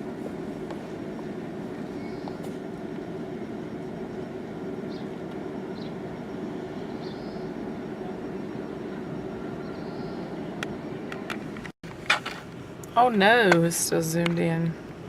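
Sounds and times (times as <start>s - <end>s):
car engine idling: 0.0s - 11.7s
faint high chirps: 1.8s - 2.5s, 3.4s - 11.2s.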